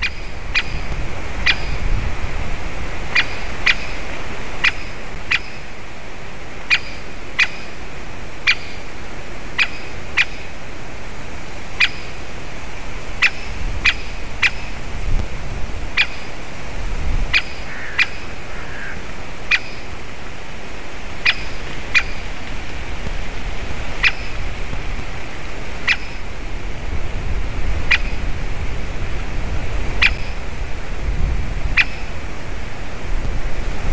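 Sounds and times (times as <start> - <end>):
woodpecker sharp kik calls: 0.0 - 1.8, 3.1 - 5.7, 6.7 - 7.8, 8.4 - 8.9, 9.6 - 10.5, 11.8 - 12.2, 13.2 - 14.8, 16.0 - 16.4, 17.3 - 19.9, 21.2 - 22.2, 24.0 - 24.5, 25.8 - 26.3, 27.9 - 28.2, 30.0 - 30.4, 31.8 - 32.1.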